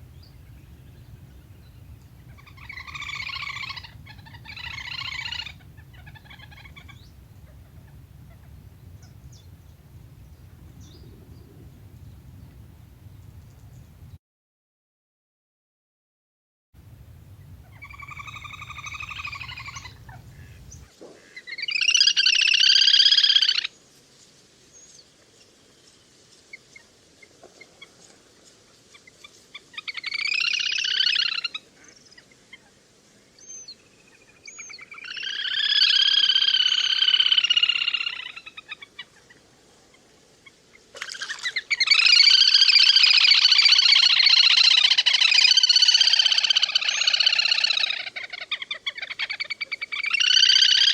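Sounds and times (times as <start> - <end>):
grebe trilling calls: 0.0 - 14.1, 17.0 - 20.9, 35.0 - 38.8, 41.0 - 50.9
low hum: 16.8 - 20.8.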